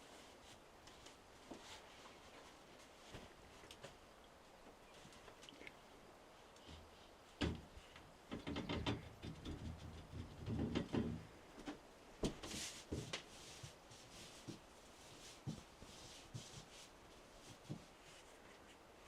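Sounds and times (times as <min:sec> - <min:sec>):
knocks and thuds: 0:07.4 - 0:07.7, 0:08.3 - 0:11.3.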